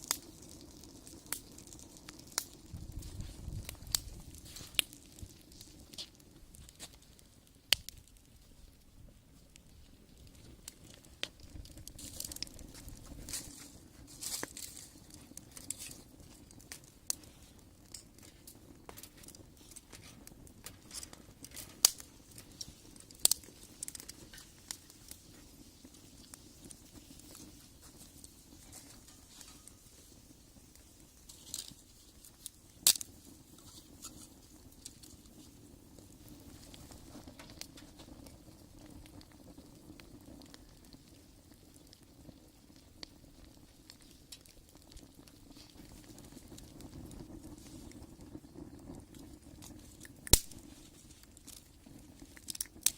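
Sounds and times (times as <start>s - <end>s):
sharp pops of fire: 0.0s - 52.9s
wood fire crackling: 0.0s - 52.9s.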